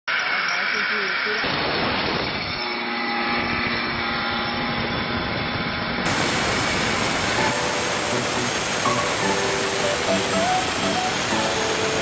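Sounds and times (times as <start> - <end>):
power cutting tool running: 6.0 - 12.0.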